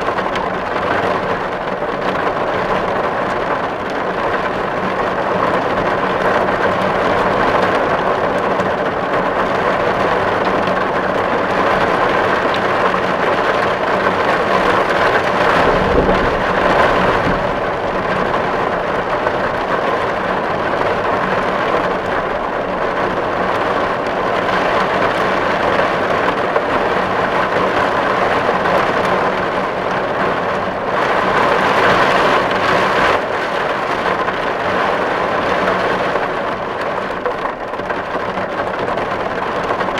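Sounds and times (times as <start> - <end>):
heavy rain on a tin roof: 0.0 - 39.9
low rumble: 14.6 - 20.8.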